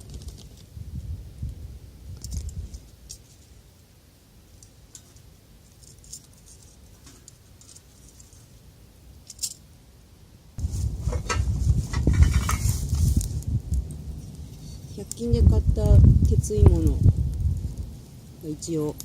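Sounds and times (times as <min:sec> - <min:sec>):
small objects clicking and rattling: 0:02.2 - 0:03.4, 0:04.6 - 0:08.5, 0:09.2 - 0:09.6.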